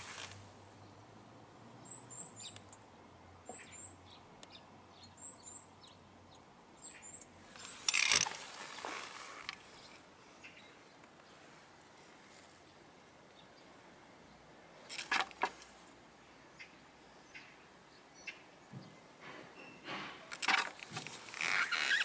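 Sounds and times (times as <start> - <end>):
rustling: 0.0 - 0.5, 7.5 - 10.0, 11.2 - 12.7, 19.4 - 22.0
birds chirping: 1.8 - 2.8, 3.4 - 11.6, 16.2 - 19.8.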